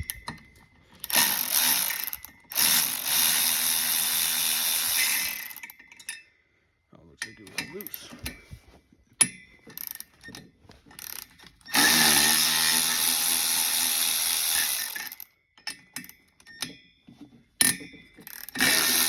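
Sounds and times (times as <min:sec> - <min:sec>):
small metal clinks: 0:05.0 - 0:06.4, 0:14.6 - 0:18.7
power tool motor whine: 0:11.7 - 0:15.2, 0:18.6 - 0:19.0.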